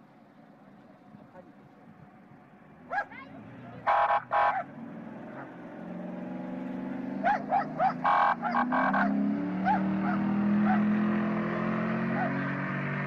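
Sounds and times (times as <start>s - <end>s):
car engine revving: 2.6s - 13.0s
small dog yapping: 7.2s - 10.9s, 12.1s - 12.4s.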